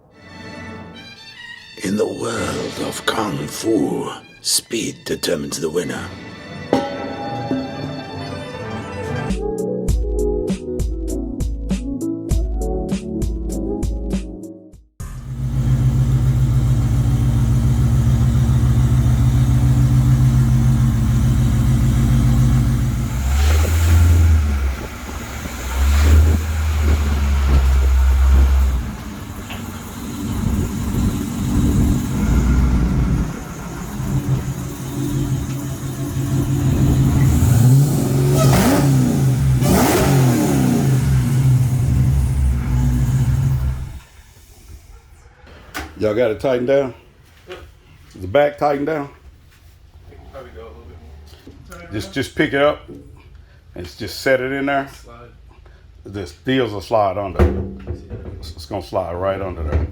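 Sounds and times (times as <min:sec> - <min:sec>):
race car engines accelerating: 0:15.0 - 0:44.0.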